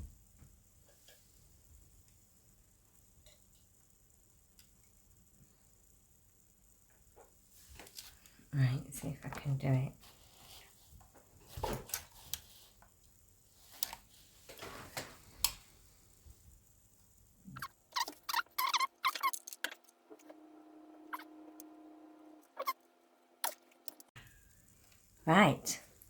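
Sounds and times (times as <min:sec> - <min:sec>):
squeaky clicks: 0:17.5 - 0:20.4, 0:22.4 - 0:22.8, 0:23.4 - 0:24.1.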